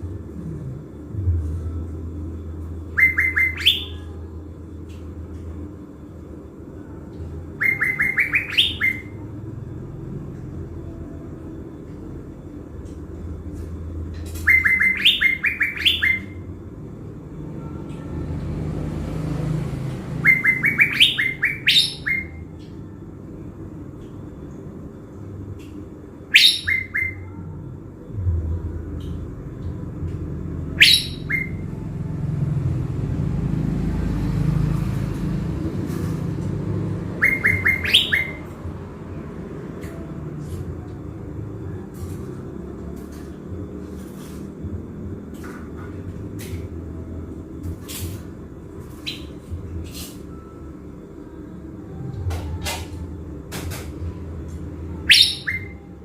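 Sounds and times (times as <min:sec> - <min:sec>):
songbird calling: 0:02.9 - 0:04.2, 0:07.6 - 0:09.2, 0:14.3 - 0:16.4, 0:20.2 - 0:22.4, 0:26.3 - 0:27.4, 0:30.7 - 0:31.7, 0:37.2 - 0:38.6, 0:55.0 - 0:55.8.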